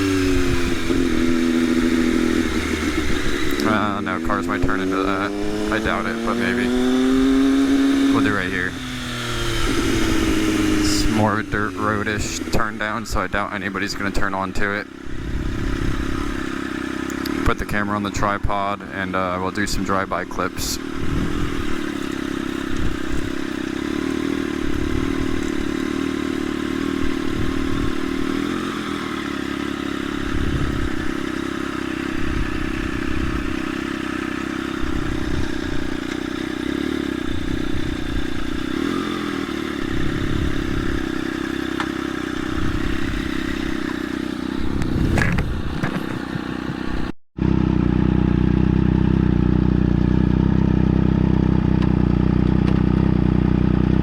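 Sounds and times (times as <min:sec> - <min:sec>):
motorcycle engine running: 0:00.0 - 0:54.0
low bumps and knocks: 0:44.6 - 0:47.1.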